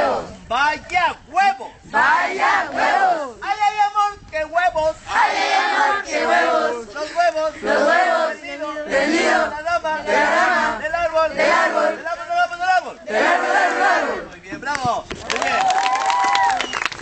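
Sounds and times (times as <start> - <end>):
group chanting and shout-singing: 0.0 - 0.5, 1.4 - 3.8, 4.6 - 14.3.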